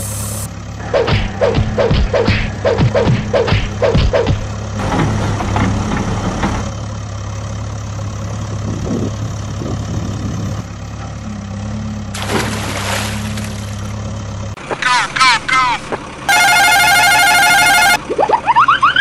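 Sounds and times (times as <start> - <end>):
engine idling hum: 0.0 - 19.0
water splash: 12.2 - 13.9.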